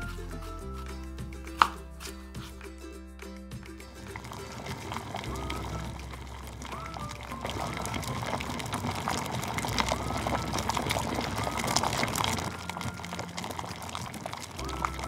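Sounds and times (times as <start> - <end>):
liquid bubbling with fine crackling: 3.7 - 15.0.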